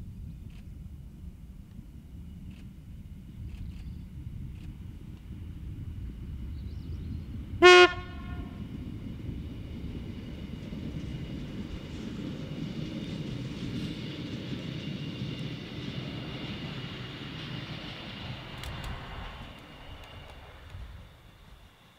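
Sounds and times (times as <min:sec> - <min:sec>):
railcar engine and wheels rumbling: 0:00.0 - 0:21.9
train horn toot: 0:07.6 - 0:08.6.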